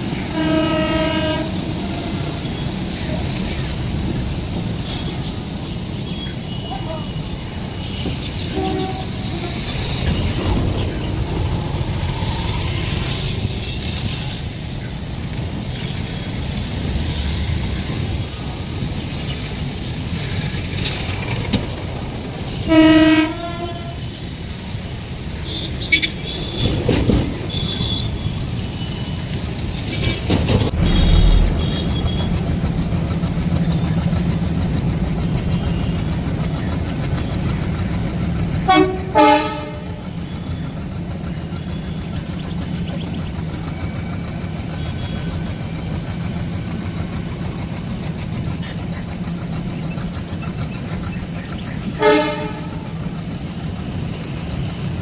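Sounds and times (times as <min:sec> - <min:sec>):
train rumbling: 0:00.0 - 0:55.0
train horn blasts: 0:00.3 - 0:01.7, 0:07.9 - 0:09.7, 0:22.6 - 0:24.2, 0:38.6 - 0:40.1, 0:52.0 - 0:53.0.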